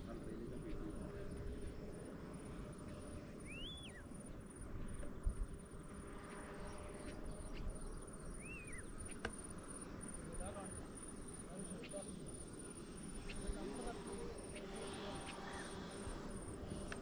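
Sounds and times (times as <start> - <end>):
bird whistled calls: 3.4 - 4.0, 8.3 - 8.9.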